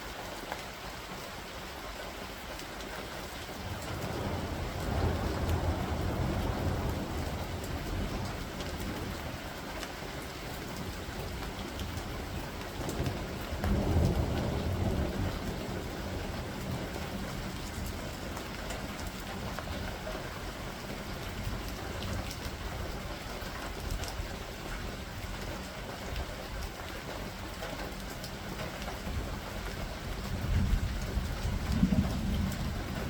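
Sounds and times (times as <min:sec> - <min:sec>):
steady rain: 0:00.0 - 0:33.0
thunder rumble: 0:03.7 - 0:09.4, 0:12.8 - 0:22.8, 0:30.1 - 0:33.0.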